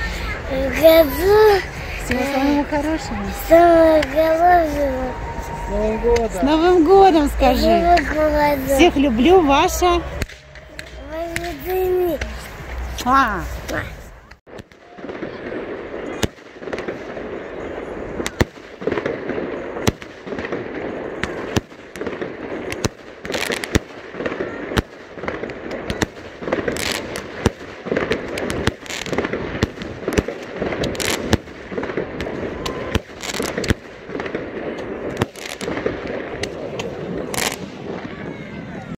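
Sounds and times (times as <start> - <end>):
fireworks bangs: 0.0 - 39.0
steady background din: 0.0 - 39.0.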